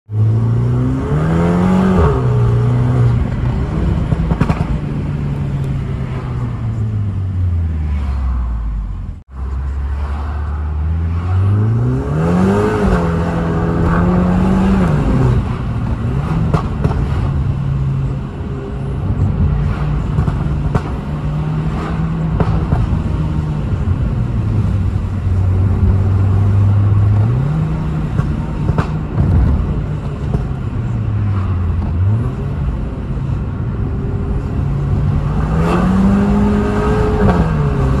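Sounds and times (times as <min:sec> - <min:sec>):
car engine revving: 0:00.1 - 0:38.0
exhaust crackles and pops: 0:03.2 - 0:05.8, 0:28.1 - 0:30.7.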